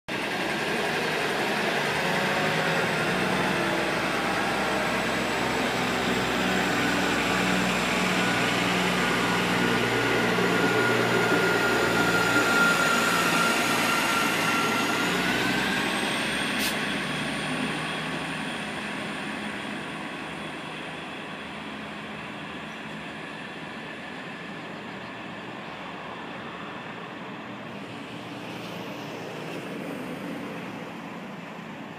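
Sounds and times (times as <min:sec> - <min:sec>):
high train whine: 0:00.1 - 0:31.9
train wheels rumbling on rails: 0:00.1 - 0:31.9.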